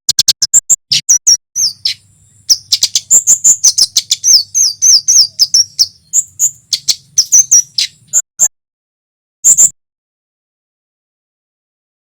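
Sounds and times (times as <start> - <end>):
bird chip notes and calls: 0.1 - 8.5, 9.4 - 9.8.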